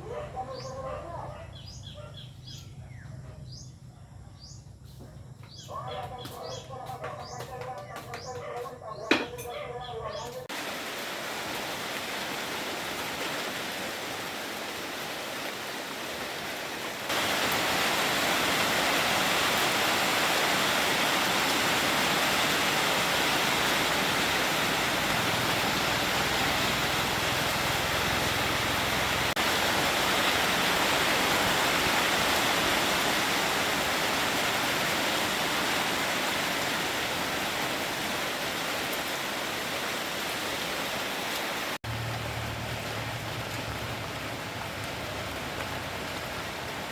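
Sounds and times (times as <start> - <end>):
heavy rain downpour: 10.4 - 46.9.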